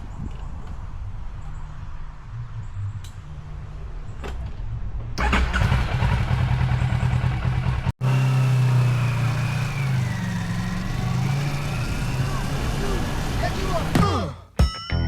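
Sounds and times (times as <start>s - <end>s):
motorcycle engine running: 5.2s - 14.0s.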